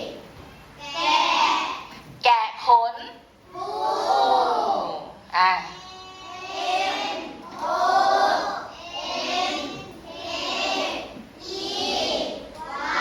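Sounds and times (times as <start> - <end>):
children chanting in unison: 0.0 - 0.2, 0.8 - 1.9, 3.5 - 5.0, 5.8 - 13.0.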